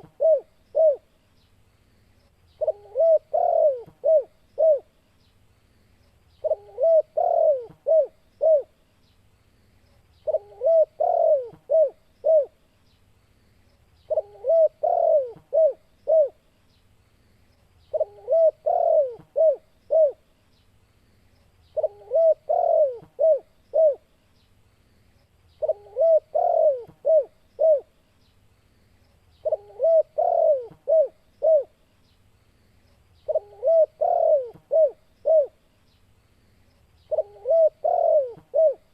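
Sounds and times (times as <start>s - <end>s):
dove cooing: 0.0s - 1.1s, 2.6s - 4.9s, 6.4s - 8.8s, 10.2s - 12.6s, 14.1s - 16.4s, 17.9s - 20.2s, 21.8s - 24.1s, 25.6s - 27.9s, 29.4s - 31.8s, 33.2s - 35.6s, 37.1s - 38.9s.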